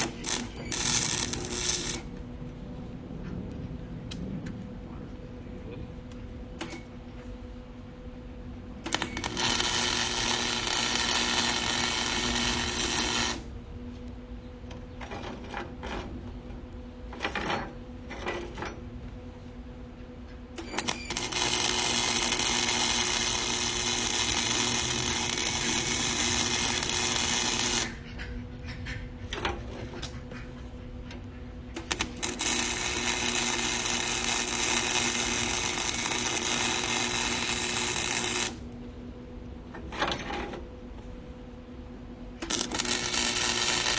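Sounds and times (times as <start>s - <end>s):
welder arc crackling and buzzing: 0.0s - 2.6s, 8.5s - 13.6s, 20.6s - 28.2s, 31.7s - 38.9s, 42.4s - 43.9s.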